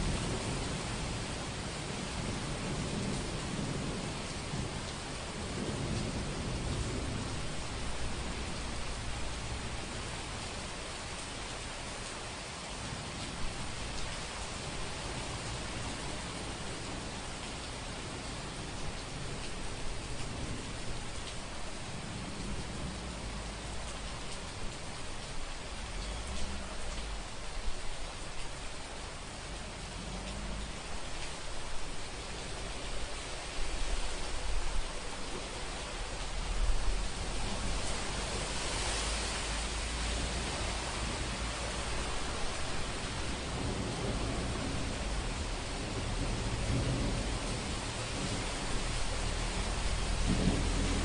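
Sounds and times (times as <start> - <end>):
heavy rain: 0.0 - 51.0
low rumble of thunder: 0.0 - 51.0
rain drop taps: 22.4 - 28.6.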